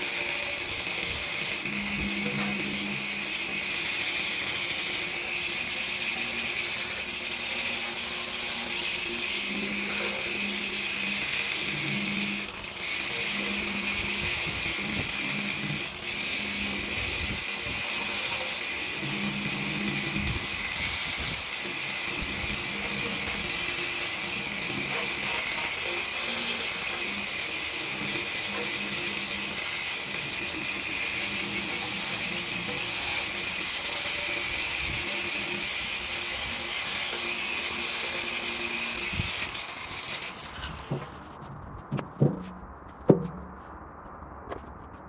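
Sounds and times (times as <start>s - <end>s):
shop tool hissing and whining: 0.0s - 41.3s
sharp knocks: 41.9s - 43.6s.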